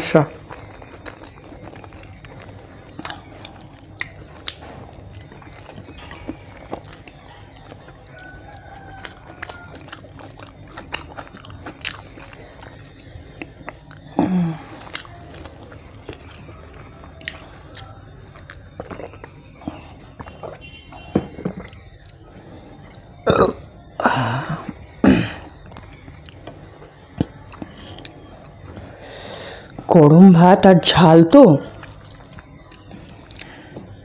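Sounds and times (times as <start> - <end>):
wet chewing and smacking: 0.2 - 23.6, 24.6 - 29.9, 31.6 - 34.0
low throat hum: 12.3 - 16.8, 19.3 - 27.4.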